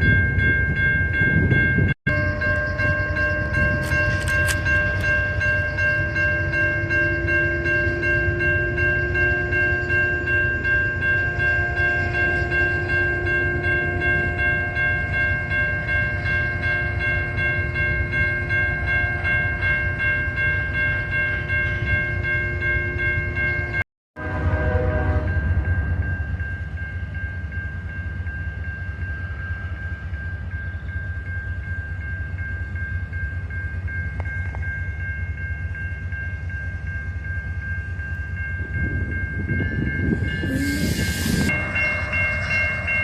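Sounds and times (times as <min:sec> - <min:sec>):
train rumbling past: 0:00.0 - 0:43.0
high whine: 0:38.2 - 0:43.0.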